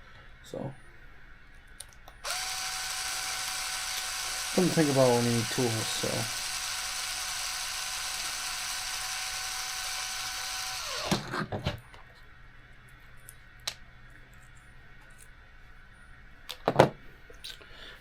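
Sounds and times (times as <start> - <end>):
electric screwdriver running: 2.2 - 11.4.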